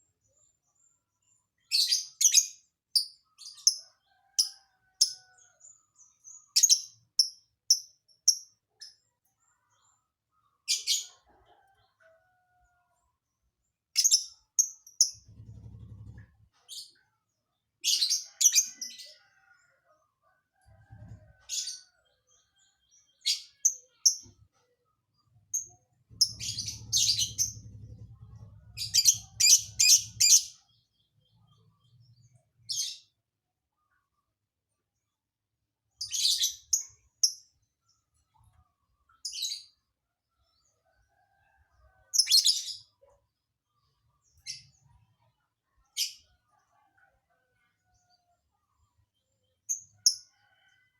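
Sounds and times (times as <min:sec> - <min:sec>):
lovebird chirping: 0:25.6 - 0:30.6.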